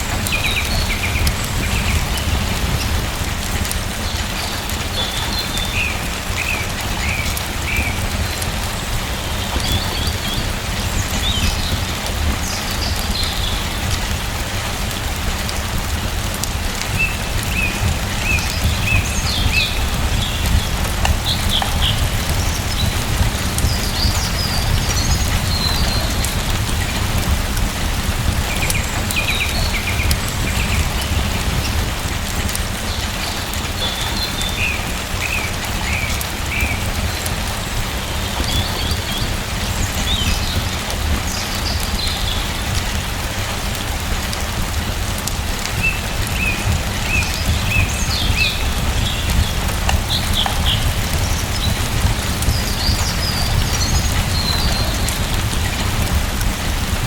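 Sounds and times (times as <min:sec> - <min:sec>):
steady rain falling: 0:00.0 - 0:57.0
small birds chirping: 0:15.2 - 0:43.1, 0:45.7 - 0:57.0.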